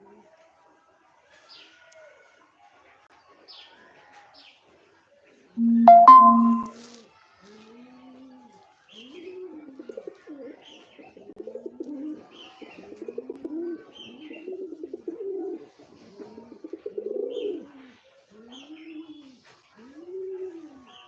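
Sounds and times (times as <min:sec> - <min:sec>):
short high chirps: 0:05.6 - 0:06.7
birds cooing: 0:16.4 - 0:17.8, 0:18.5 - 0:19.3.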